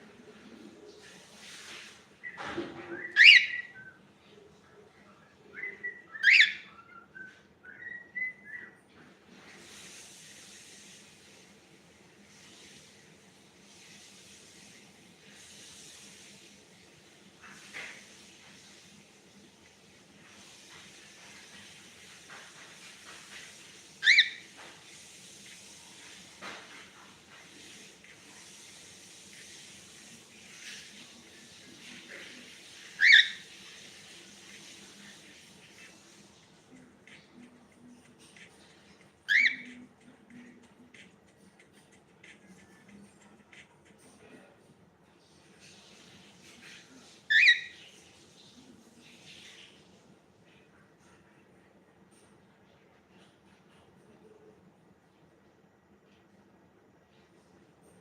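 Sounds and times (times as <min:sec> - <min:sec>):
faint steady hiss: 0:00.0 - 0:58.0
cockatiel chirps: 0:02.2 - 0:04.0, 0:05.6 - 0:08.8, 0:24.0 - 0:24.4, 0:32.8 - 0:33.5, 0:39.2 - 0:39.8, 0:47.3 - 0:47.9
cockatiel whistling: 0:02.2 - 0:04.0, 0:05.6 - 0:08.8, 0:24.0 - 0:24.4, 0:33.0 - 0:33.4, 0:39.3 - 0:39.8, 0:47.3 - 0:47.8.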